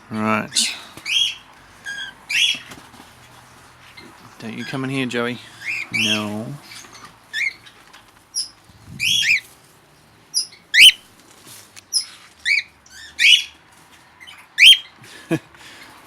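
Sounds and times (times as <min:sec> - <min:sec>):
parrots chirping shrilly: 0:00.5 - 0:02.8, 0:05.4 - 0:09.5, 0:10.3 - 0:11.0, 0:11.9 - 0:13.6, 0:14.2 - 0:15.0.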